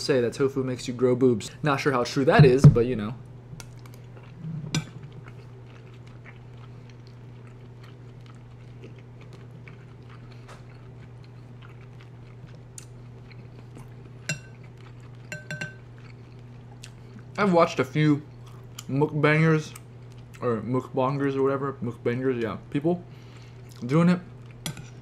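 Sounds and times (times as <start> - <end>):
steady low hum: 0.0 - 25.0
person chewing food: 3.6 - 17.4, 18.3 - 18.9, 23.2 - 25.0
spoon clinking against bowl: 15.3 - 15.8.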